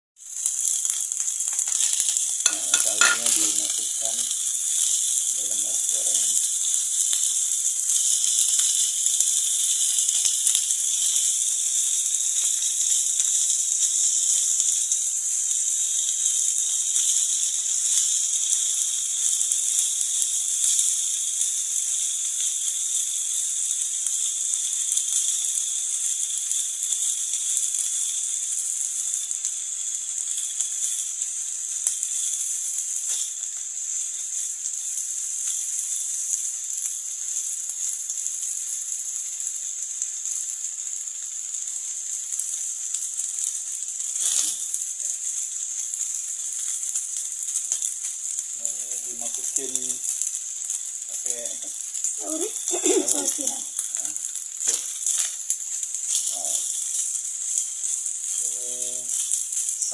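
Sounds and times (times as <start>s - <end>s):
rice sizzling in a frying pan: 0.2s - 59.9s
spatula tapping and scraping: 1.5s - 3.4s.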